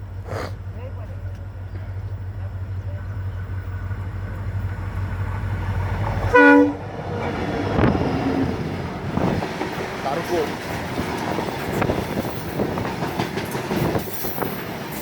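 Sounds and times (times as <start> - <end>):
train rumbling: 0.0 - 15.0
wheels rattling over rails: 0.8 - 15.0
train horn blast: 6.2 - 7.3.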